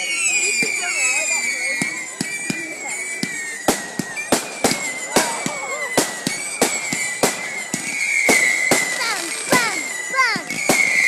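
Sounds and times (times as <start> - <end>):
fireworks bangs: 0.0 - 11.0
whistling fireworks: 0.0 - 11.0.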